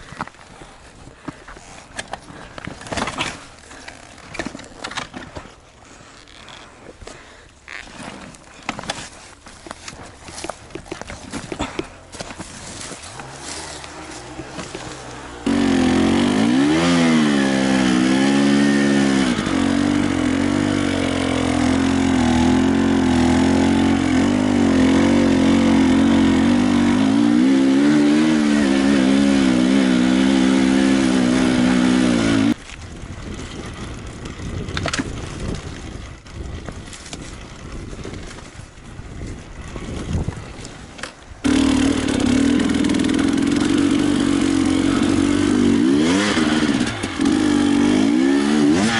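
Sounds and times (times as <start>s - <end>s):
motorcycle engine revving: 10.3s - 38.6s, 41.4s - 48.9s.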